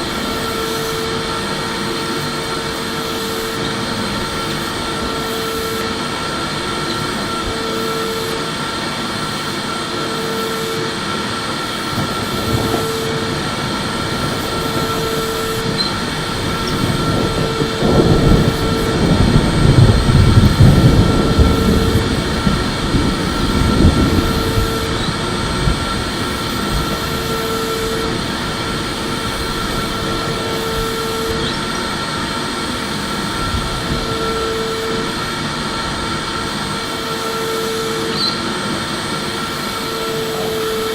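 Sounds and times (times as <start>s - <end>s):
vacuum cleaner whine: 0.0s - 40.9s
heavy low rumble: 12.0s - 37.0s.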